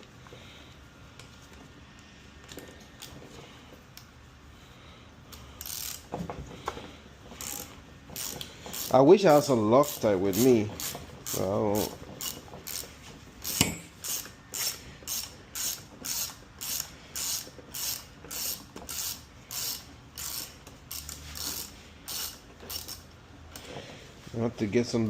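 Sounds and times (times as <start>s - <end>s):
ratchet wrench clicking: 5.3s - 6.1s, 7.4s - 23.6s.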